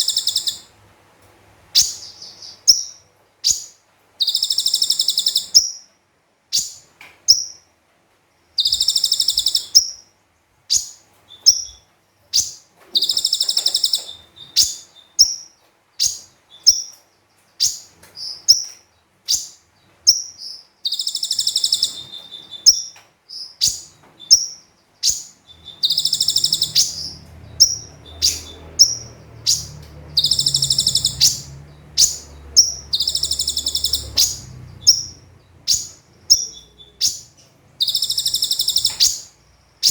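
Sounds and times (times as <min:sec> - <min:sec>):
bird buzzy trills: 0:00.0 - 0:00.7, 0:23.6 - 0:39.9
bird chirping: 0:00.0 - 0:00.7, 0:01.7 - 0:07.7, 0:08.5 - 0:39.9
faint low hum: 0:08.4 - 0:39.9.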